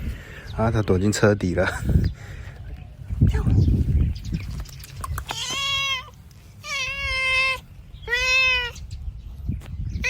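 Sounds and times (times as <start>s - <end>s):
cat meowing: 5.3s - 8.8s.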